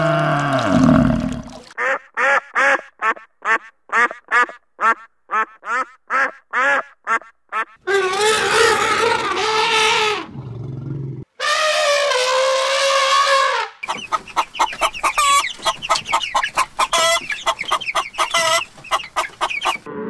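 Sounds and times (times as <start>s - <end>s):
wavering animal call: 7.9s - 10.3s
ducks quacking: 13.8s - 19.9s.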